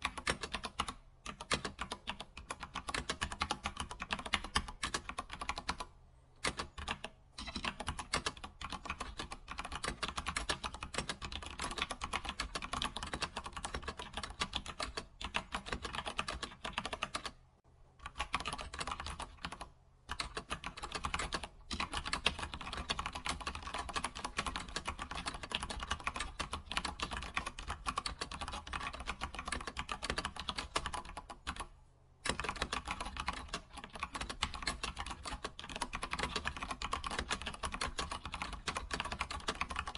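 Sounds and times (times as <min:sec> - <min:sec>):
computer keyboard typing: 0:00.0 - 0:17.4, 0:18.0 - 0:39.9.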